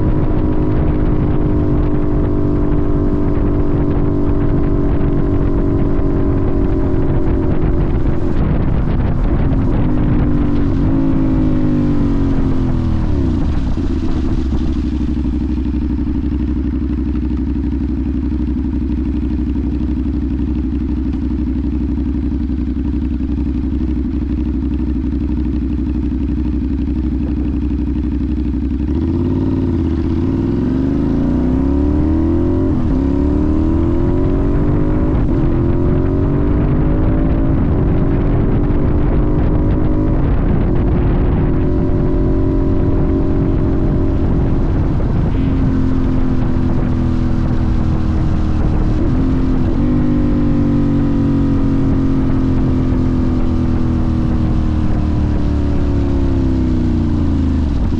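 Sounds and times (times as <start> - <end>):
motorcycle accelerating through gears: 0.0 - 57.9
motorcycle engine idling: 3.3 - 31.0, 44.1 - 49.8.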